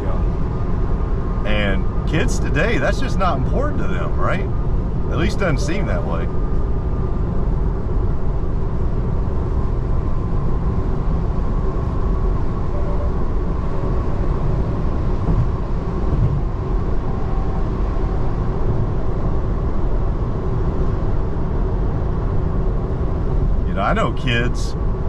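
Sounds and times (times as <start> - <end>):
faint steady hum: 0.0 - 25.0
road and tyre rumble: 0.0 - 25.0.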